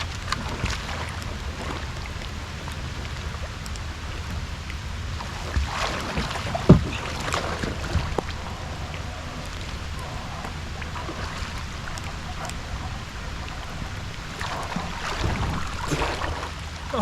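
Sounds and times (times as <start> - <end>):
paddle splashing in water: 0.0 - 17.0
steady low rumble: 0.0 - 17.0.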